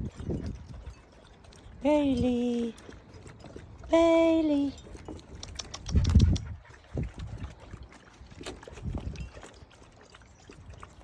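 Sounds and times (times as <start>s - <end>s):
dogs moving about: 4.9s - 11.0s.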